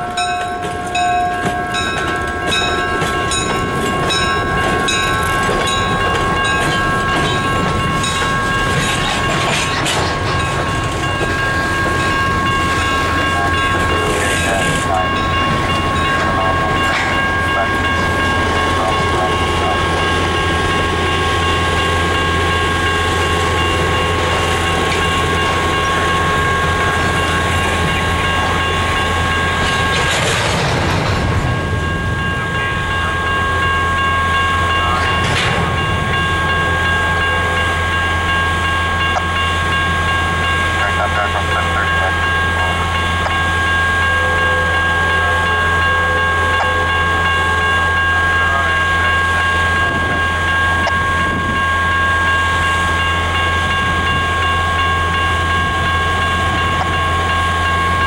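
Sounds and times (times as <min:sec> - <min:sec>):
rapid bell ringing: 0:00.0 - 0:30.0, 0:31.5 - 0:58.0
steady high ringing tones: 0:00.0 - 0:30.2, 0:31.3 - 0:58.0
wheels clacking over rails: 0:00.0 - 0:43.8.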